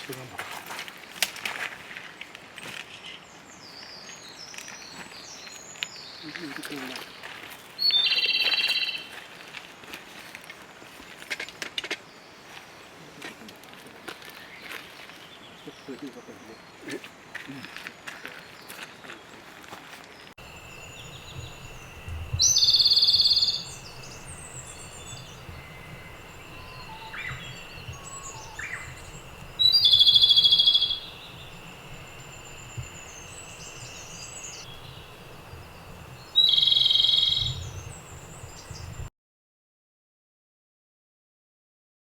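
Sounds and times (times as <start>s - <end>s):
songbird trilling: 7.8s - 9.1s, 20.4s - 39.1s
faint high-pitched tone: 20.4s - 37.6s
soft bird calls: 20.4s - 39.1s.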